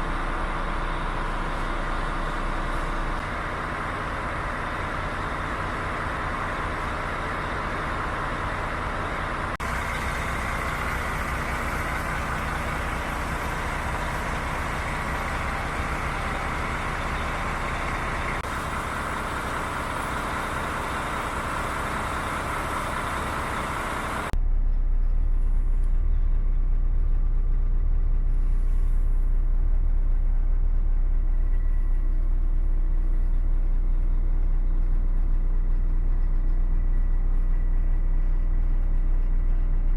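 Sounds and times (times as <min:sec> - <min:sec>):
deep low engine drone: 0:00.0 - 0:39.9
diesel lorry engine running: 0:00.0 - 0:39.9.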